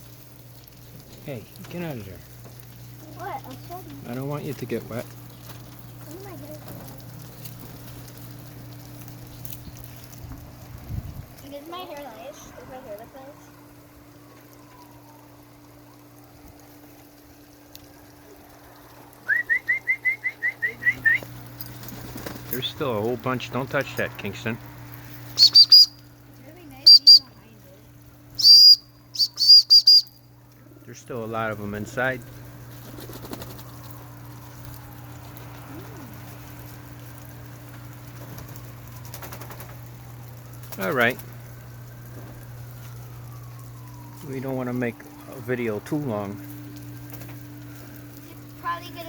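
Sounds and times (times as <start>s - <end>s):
faint steady hum: 0.0s - 49.0s
sprinkler spraying water: 0.0s - 49.0s
short rising whistled notes: 19.2s - 21.2s, 25.4s - 26.0s, 28.4s - 30.2s.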